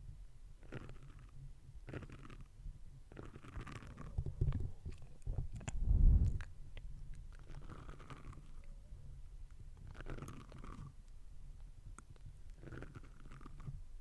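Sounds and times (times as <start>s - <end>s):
low rumble: 5.5s - 6.6s.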